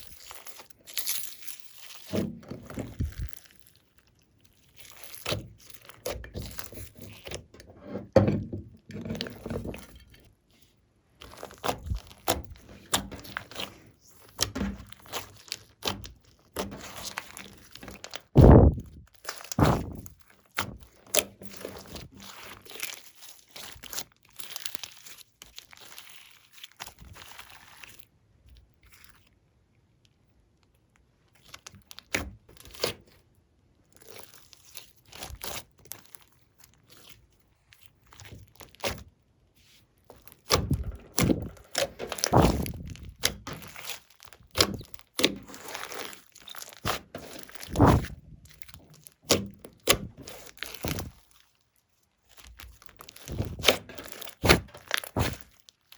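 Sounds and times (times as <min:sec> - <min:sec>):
slime crackling and popping: 0:00.0 - 0:07.4, 0:11.2 - 0:28.1, 0:34.0 - 0:39.1, 0:40.1 - 0:55.9.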